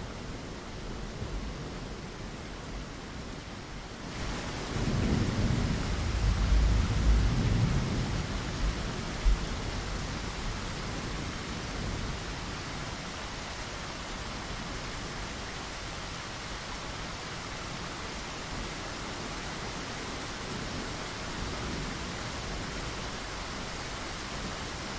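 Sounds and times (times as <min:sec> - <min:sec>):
steady rain: 0:00.0 - 0:24.9
rolling thunder: 0:04.5 - 0:09.9.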